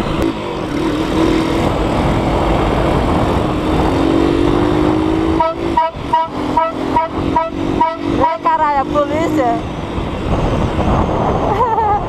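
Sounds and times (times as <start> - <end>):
road and wind noise: 0.0 - 12.0
vehicle engine accelerating: 0.0 - 12.0
horn short blasts: 5.3 - 8.6.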